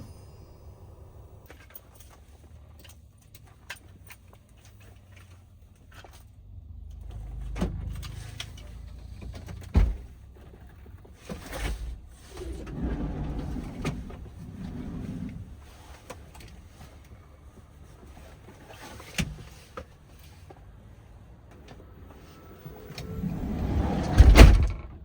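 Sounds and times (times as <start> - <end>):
low vehicle rumble: 0.0 - 2.9, 5.6 - 25.0
sharp thump: 23.2 - 25.0.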